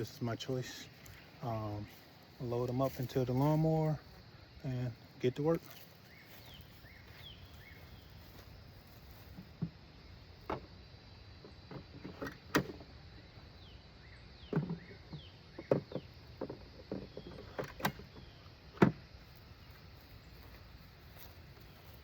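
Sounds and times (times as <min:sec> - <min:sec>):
hard plastic knocks and clicks: 0:11.4 - 0:12.9, 0:14.5 - 0:19.0.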